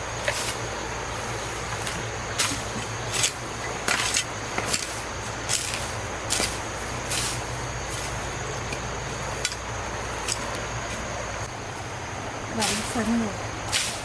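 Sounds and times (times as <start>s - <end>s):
steady low hum: 0.0s - 14.0s
brush swishing: 10.9s - 14.0s.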